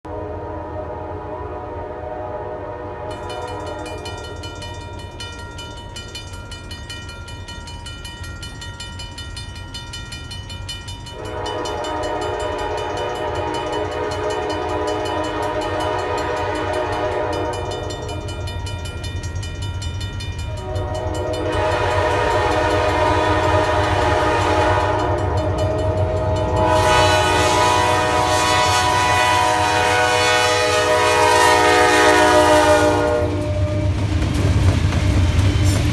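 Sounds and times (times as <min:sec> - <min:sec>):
locomotive air horn blasts: 0:00.1 - 0:04.6, 0:11.1 - 0:18.4, 0:20.5 - 0:34.0.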